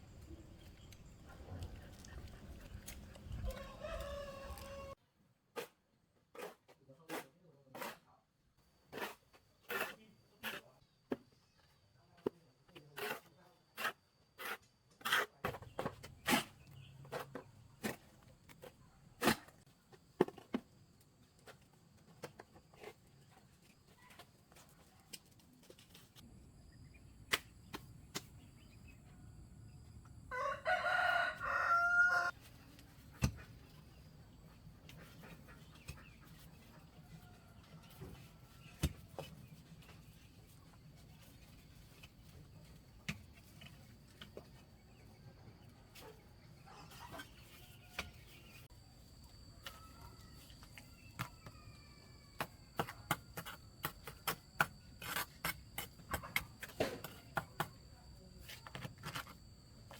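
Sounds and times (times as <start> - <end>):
rooster crowing: 3.4 - 5.0, 30.3 - 32.4.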